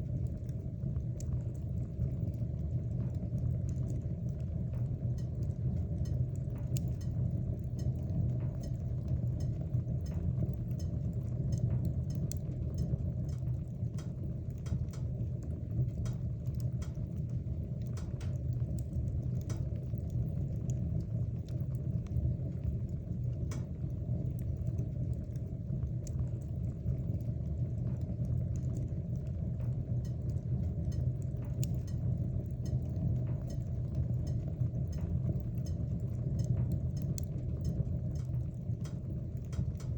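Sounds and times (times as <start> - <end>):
burning wood crackling: 0.0 - 39.9
fire rumbling: 0.0 - 39.9.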